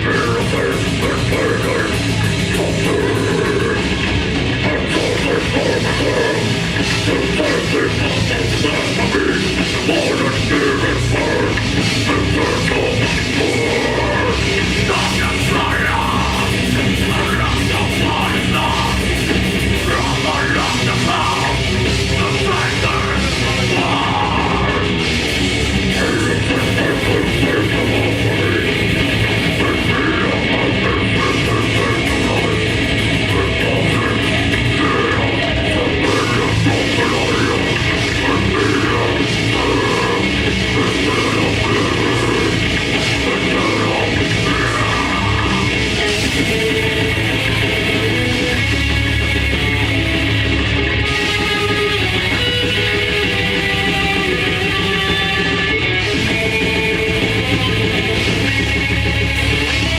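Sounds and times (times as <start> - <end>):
bass guitar: 0.0 - 59.9
distorted guitars: 0.0 - 59.9
drums: 0.0 - 59.9.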